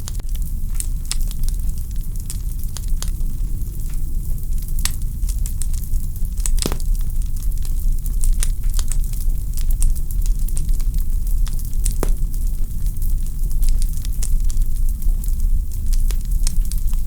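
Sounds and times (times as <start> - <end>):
wood fire crackling and popping: 4.6 - 17.0.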